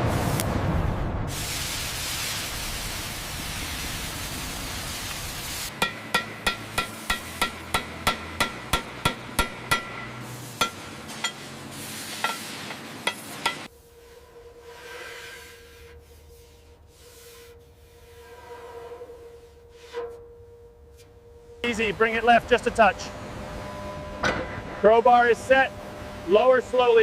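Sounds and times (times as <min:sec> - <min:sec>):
steady hiss: 0:01.3 - 0:13.7
hammer ringing on steel: 0:05.7 - 0:11.5, 0:12.2 - 0:13.7.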